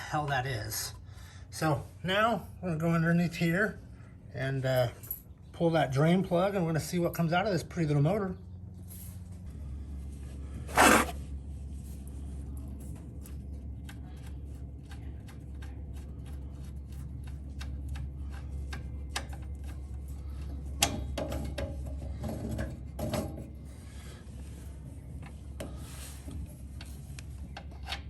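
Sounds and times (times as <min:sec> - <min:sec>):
steady low hum: 0:00.0 - 0:28.0
loud scraping rush: 0:10.6 - 0:11.3.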